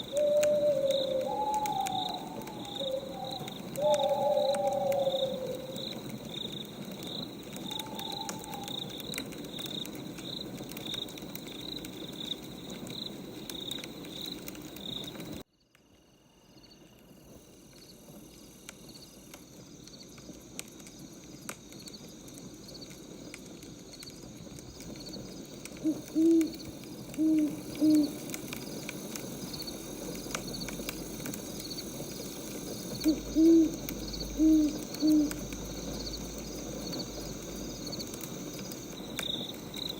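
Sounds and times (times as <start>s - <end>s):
owl hooting: 0.0s - 6.1s, 7.5s - 9.1s, 25.8s - 28.4s, 32.9s - 36.0s
firewood crackling: 0.0s - 15.5s, 16.9s - 39.9s
insects chirping: 0.0s - 39.9s.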